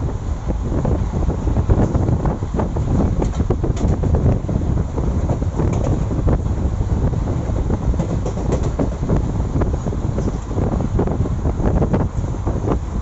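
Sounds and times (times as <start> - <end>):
train wheels rumbling on rails: 0.0 - 13.0
clicks and rattles: 5.3 - 6.2, 7.9 - 9.0.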